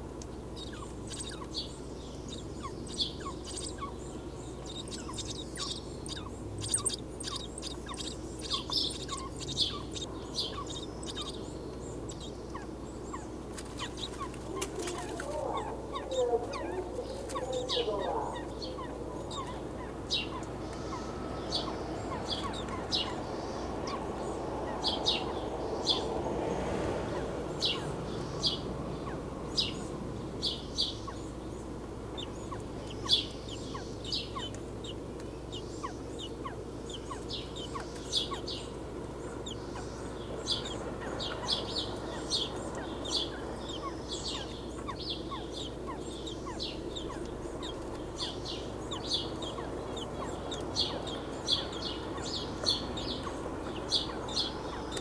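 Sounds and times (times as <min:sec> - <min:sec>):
birds chirping: 0:00.0 - 0:55.0
low hum: 0:00.0 - 0:55.0.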